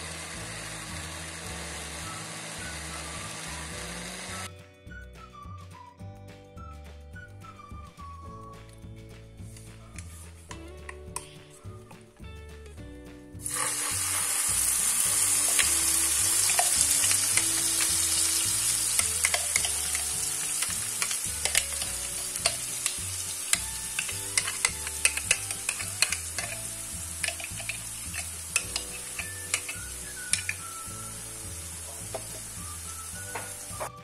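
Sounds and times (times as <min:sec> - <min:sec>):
crackling pops of frying: 0:13.4 - 0:34.0
spice paste sizzling in oil: 0:13.4 - 0:34.0.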